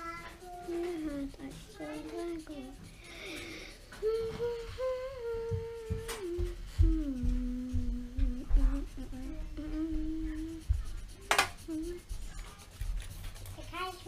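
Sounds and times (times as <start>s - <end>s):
person humming a slow tune: 4.0s - 10.6s
soft low bumps: 4.0s - 11.2s.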